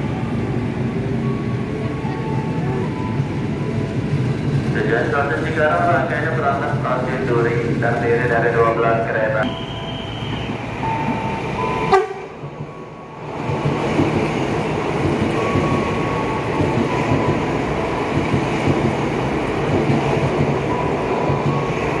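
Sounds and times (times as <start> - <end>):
train wheels rumbling on rails: 0.0 - 22.0
train horn note: 11.8 - 12.4.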